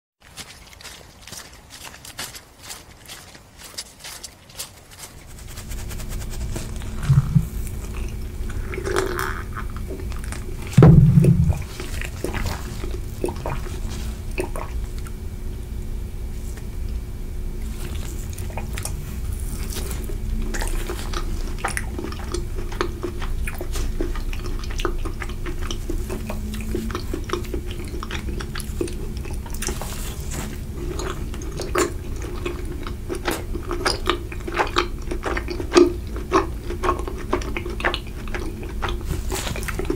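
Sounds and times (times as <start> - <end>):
biting and chewing: 0.2 - 39.9
wet mouth clicks: 5.0 - 15.2
loud low thumps: 6.8 - 8.0, 10.7 - 11.8.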